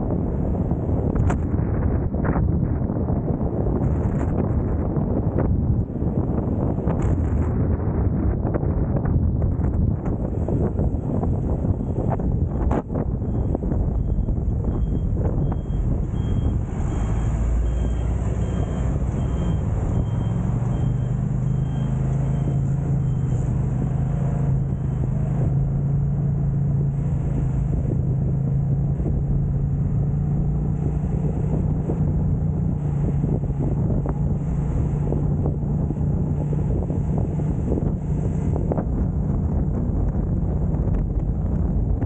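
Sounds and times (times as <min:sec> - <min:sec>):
engine running: 0:00.0 - 0:42.0
wind noise on microphone: 0:00.0 - 0:42.0
faint high beep: 0:13.2 - 0:23.4.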